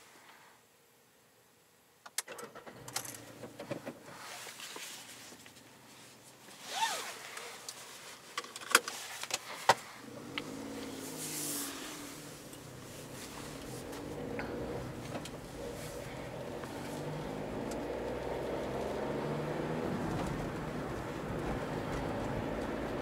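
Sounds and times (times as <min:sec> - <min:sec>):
sharp clicks in car cabin: 0:02.0 - 0:04.0
car engine idling: 0:09.5 - 0:23.0.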